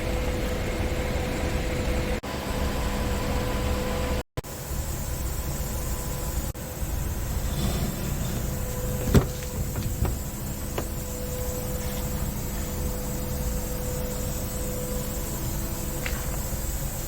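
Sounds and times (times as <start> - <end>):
faint steady whine: 0.0 - 17.0
diesel engine idling: 5.6 - 17.0.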